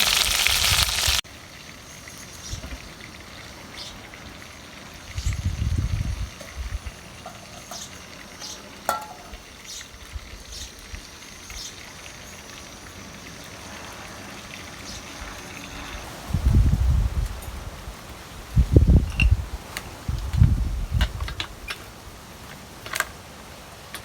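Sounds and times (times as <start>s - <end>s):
crackles and pops: 0.0s - 1.2s
food sizzling in oil: 0.0s - 20.1s.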